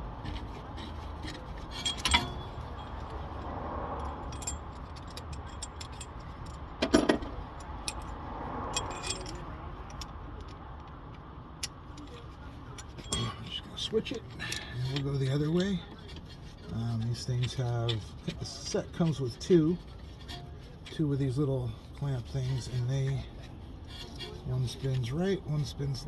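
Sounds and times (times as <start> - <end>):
traffic rumble: 0.0 - 26.0
metal tool parts clinking: 0.2 - 3.4, 4.0 - 8.1, 8.7 - 10.6, 11.6 - 21.4.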